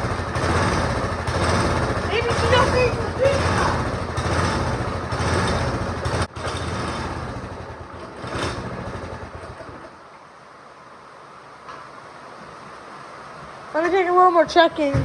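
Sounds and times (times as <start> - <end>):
go-kart engine running: 0.0 - 10.1.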